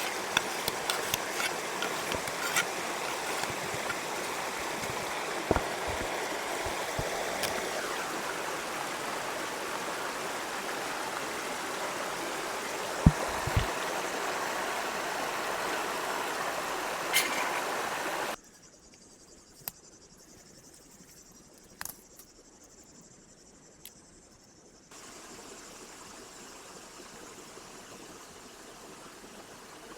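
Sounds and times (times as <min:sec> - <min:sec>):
flowing water rushing: 0:00.0 - 0:18.4
dull knocks: 0:13.0 - 0:13.7.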